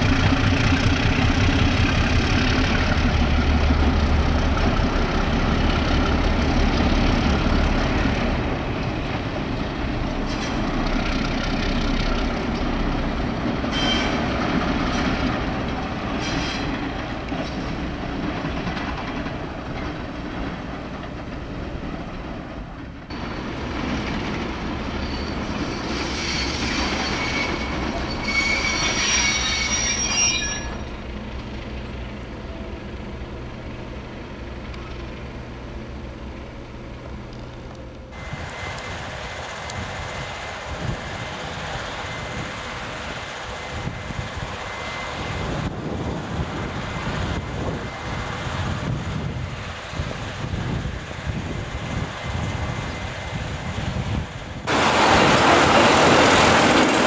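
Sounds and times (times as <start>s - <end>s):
locomotive engine rumble: 0.0s - 30.0s, 30.6s - 57.0s
rail cars rolling: 0.0s - 57.0s
wheels squealing: 24.9s - 31.1s.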